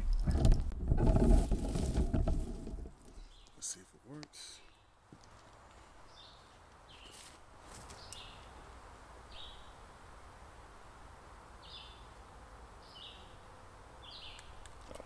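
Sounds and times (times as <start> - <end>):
small bird chirping: 7.9 - 8.5, 14.0 - 14.7.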